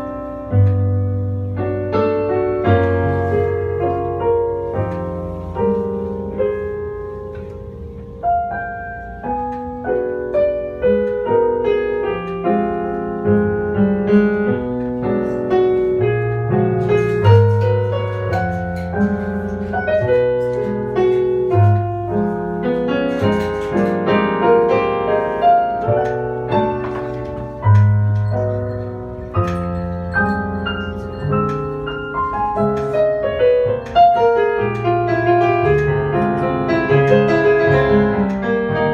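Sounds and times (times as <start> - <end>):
jazz piano playing: 0.0 - 38.9.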